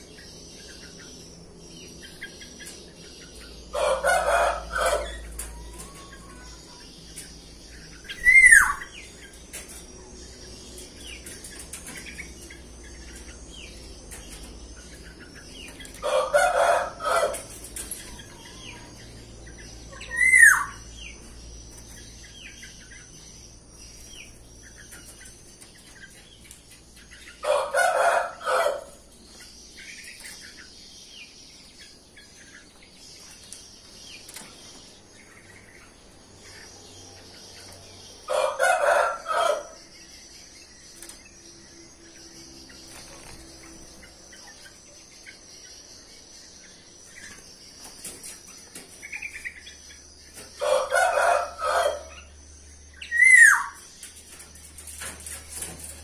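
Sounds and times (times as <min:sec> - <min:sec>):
small birds chirping: 0:00.0 - 0:56.0
rooster crowing: 0:03.7 - 0:06.9, 0:16.0 - 0:17.5, 0:27.4 - 0:29.0, 0:38.3 - 0:39.8, 0:50.6 - 0:52.3.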